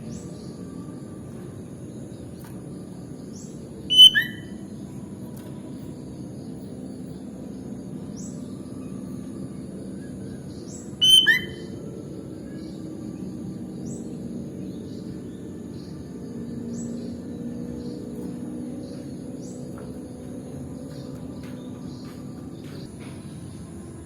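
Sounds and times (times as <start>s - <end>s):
bulbul whistled calls: 3.3s - 5.0s, 10.0s - 12.8s
faint high chirps: 3.5s - 5.9s, 8.2s - 12.6s.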